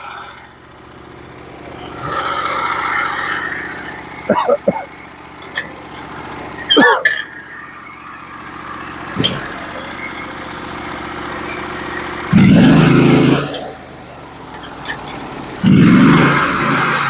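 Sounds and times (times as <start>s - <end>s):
gas engine running: 0.0s - 17.0s
wavering squeal: 1.8s - 13.8s.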